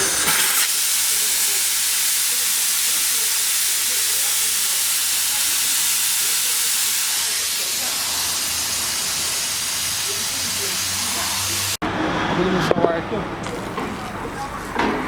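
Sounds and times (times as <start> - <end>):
air hissing out of tyre valve: 0.0 - 11.8.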